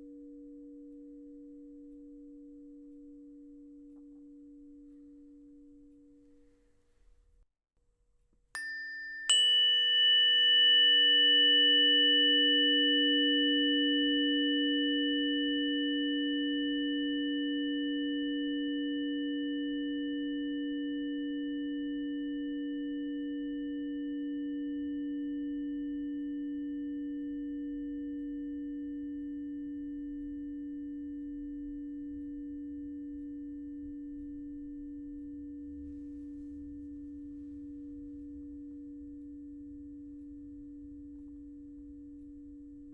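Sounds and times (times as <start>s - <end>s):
struck bowl ringing: 8.6s - 17.4s.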